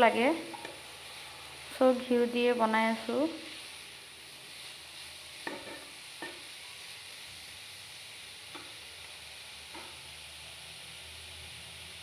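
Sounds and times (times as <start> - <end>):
quiet steady sizzle in a pan: 0.0 - 12.0
spatula scraping a pan: 4.5 - 6.6.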